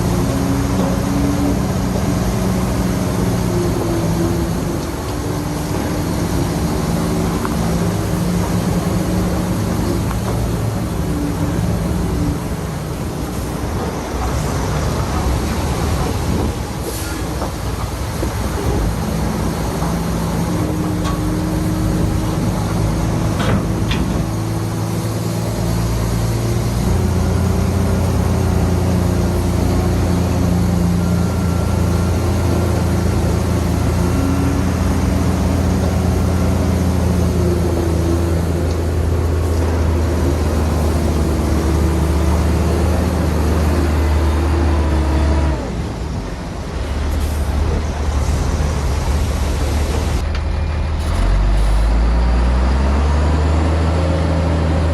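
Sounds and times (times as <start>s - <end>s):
heavy diesel engine running hard: 0.0s - 54.9s.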